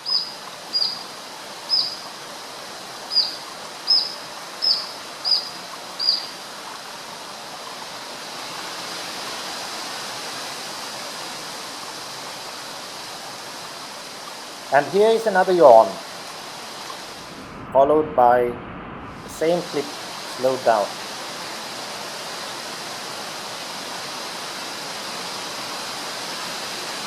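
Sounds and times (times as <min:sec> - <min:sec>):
bird whistling high notes: 0:00.0 - 0:01.0, 0:01.7 - 0:02.0, 0:03.1 - 0:06.3
flowing water: 0:00.0 - 0:17.4, 0:19.3 - 0:27.0.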